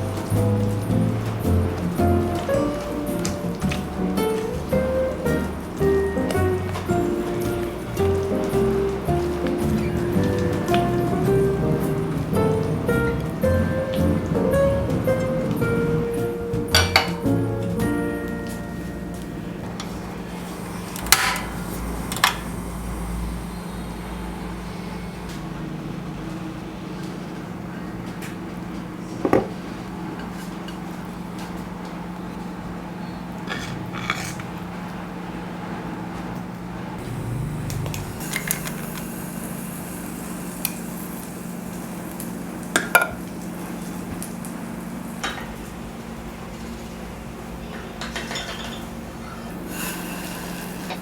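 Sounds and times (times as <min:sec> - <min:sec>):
low mechanical hum: 0:00.0 - 0:51.0
utensil clinking on cookware: 0:16.7 - 0:17.2, 0:48.0 - 0:48.9.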